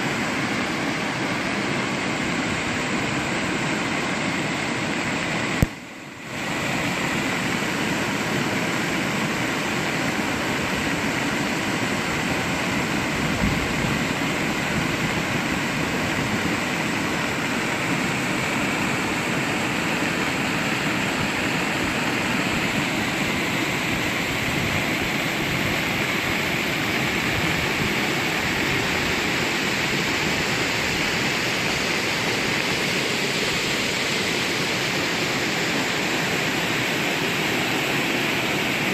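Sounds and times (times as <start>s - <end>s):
rain falling: 13.2s - 17.8s.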